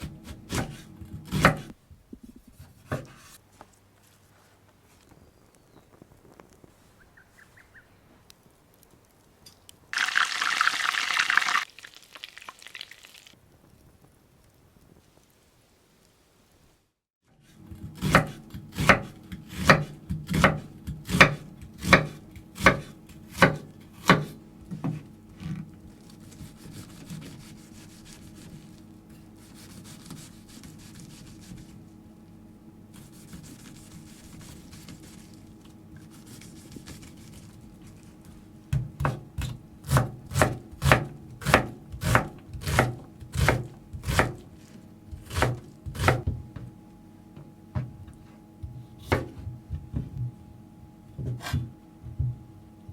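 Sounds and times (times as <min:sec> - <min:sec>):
chopping strikes on wood: 0:00.5 - 0:01.7, 0:18.0 - 0:25.0.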